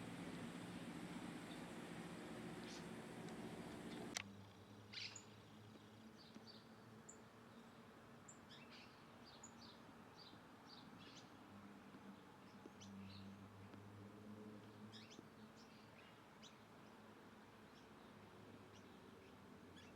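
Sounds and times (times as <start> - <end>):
birds chirping: 0.0 - 4.2
faint low hum: 0.0 - 4.8.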